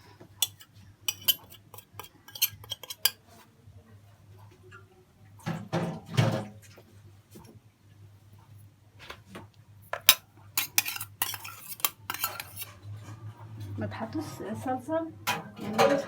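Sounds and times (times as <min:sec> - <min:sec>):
scraping clatter in bowl: 0:00.4 - 0:03.2, 0:10.0 - 0:13.1
spoon clinking against bowl: 0:00.4 - 0:03.2, 0:10.1 - 0:12.7.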